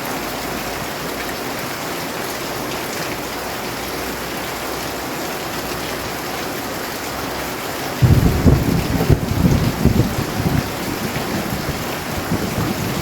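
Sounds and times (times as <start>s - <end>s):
heavy rainfall: 0.0s - 13.0s
low rumble of thunder: 8.0s - 13.0s.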